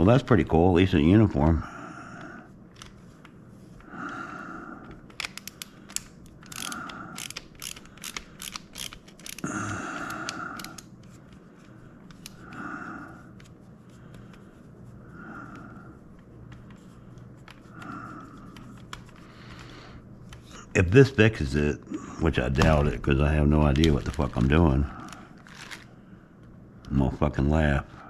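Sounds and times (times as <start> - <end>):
plastic parts clicking and ratcheting: 4.8 - 10.9, 23.6 - 25.9.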